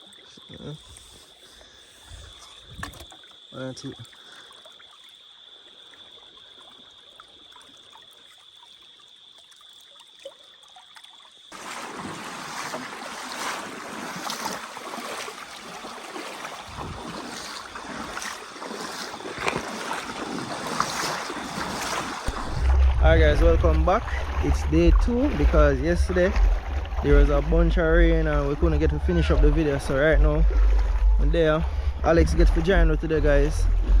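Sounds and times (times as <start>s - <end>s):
river water running: 0.0s - 34.0s
steady high tone: 22.5s - 26.2s.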